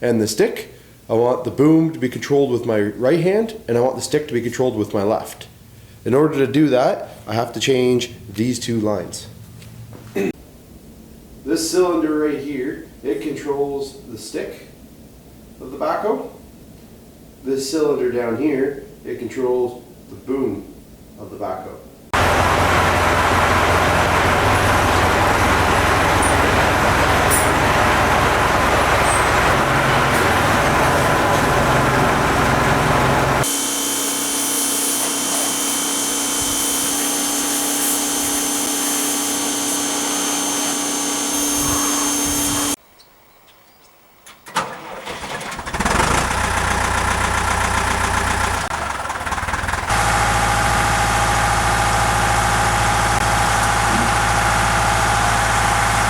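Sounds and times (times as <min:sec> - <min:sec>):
tractor engine running: 0:22.2 - 0:33.6, 0:44.6 - 0:56.0.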